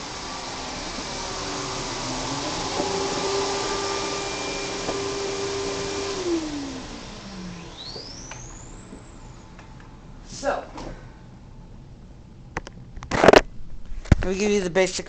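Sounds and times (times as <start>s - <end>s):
vacuum cleaner motor running: 0.0s - 10.0s.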